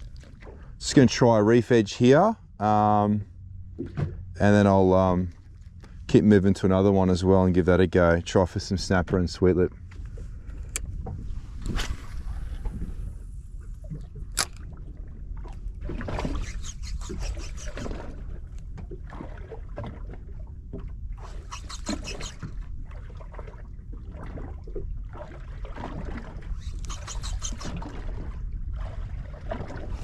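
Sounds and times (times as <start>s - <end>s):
low rumble of wind and water: 0.0s - 30.0s
fishing reel ticking: 16.3s - 18.0s, 21.2s - 22.5s, 26.6s - 27.8s
sharp clicks: 26.6s - 27.7s.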